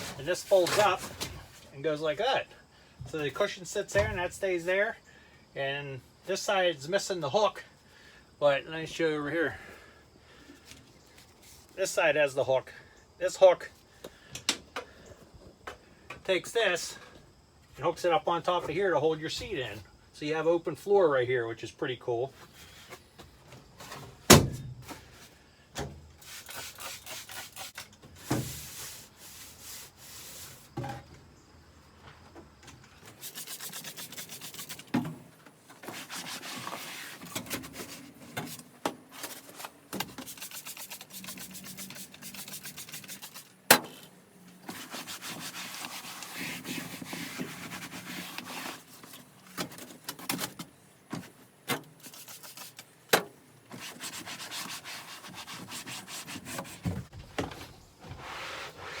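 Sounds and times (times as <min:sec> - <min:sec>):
scrubbing a car seat: 0:00.0 - 0:01.1, 0:33.1 - 0:34.9, 0:35.8 - 0:38.7, 0:40.1 - 0:43.6, 0:44.6 - 0:49.2, 0:53.7 - 0:57.1, 0:58.1 - 0:59.0.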